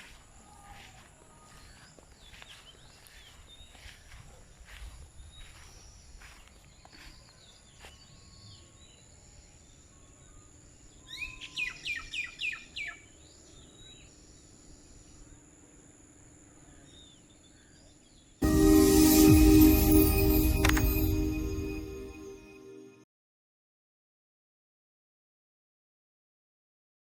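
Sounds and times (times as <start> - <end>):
music: 18.4 - 23.0.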